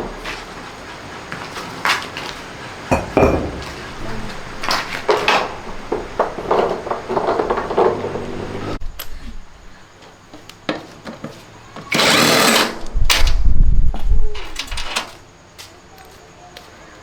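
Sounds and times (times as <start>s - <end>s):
metal tools clinking: 2.9s - 8.8s.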